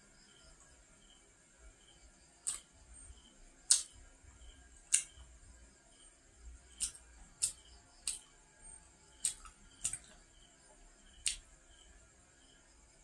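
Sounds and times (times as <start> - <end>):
wet mouth clicks while chewing: 2.4 - 2.6, 9.2 - 10.2.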